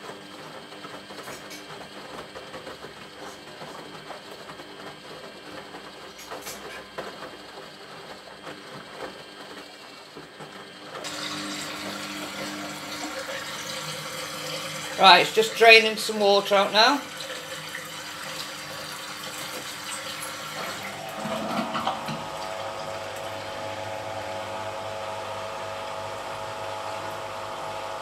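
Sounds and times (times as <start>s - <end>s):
washing machine running: 0.0s - 28.0s
drain pump humming: 9.6s - 28.0s.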